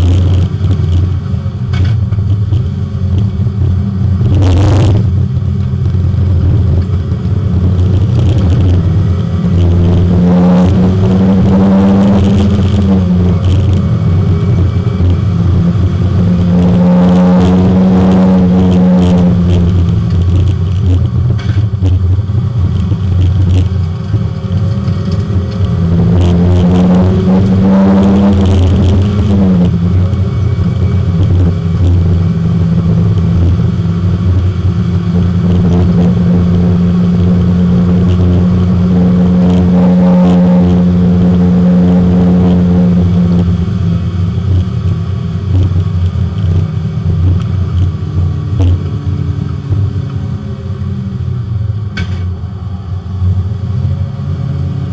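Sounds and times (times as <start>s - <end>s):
race car engine under load: 0.0s - 54.9s.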